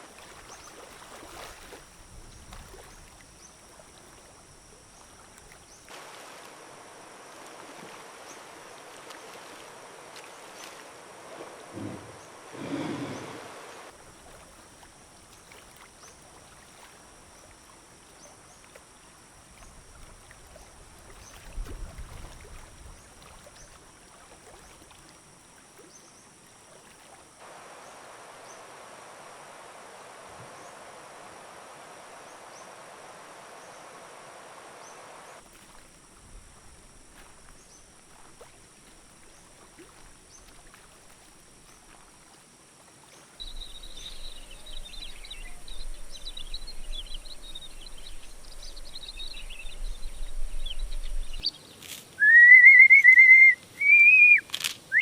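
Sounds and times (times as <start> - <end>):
steady hiss: 0.0 - 22.0, 25.1 - 55.0
high insect chirp: 0.0 - 55.0
low thump: 11.8 - 13.2.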